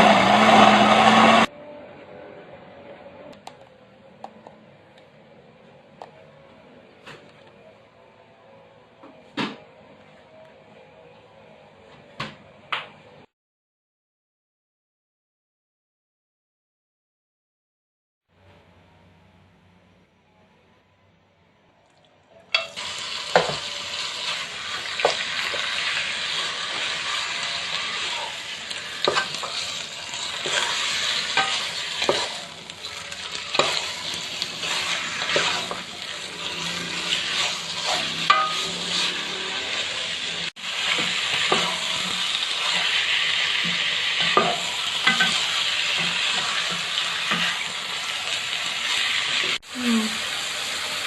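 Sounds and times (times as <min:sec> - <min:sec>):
spatula scraping a pan: 0:22.6 - 0:40.0, 0:40.7 - 0:47.8
food sizzling in hot oil: 0:22.6 - 0:51.0.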